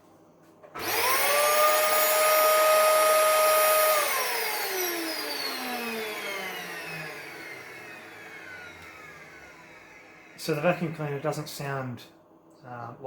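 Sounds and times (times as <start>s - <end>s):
vacuum cleaner motor whine: 0.7s - 11.0s.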